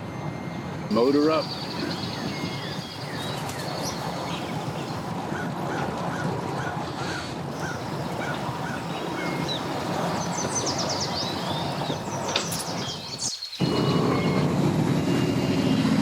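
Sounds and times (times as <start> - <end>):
outdoor background noise: 0.0 - 16.0
high bird trill: 0.9 - 5.1, 7.6 - 14.5
small bird chirping: 7.6 - 14.4.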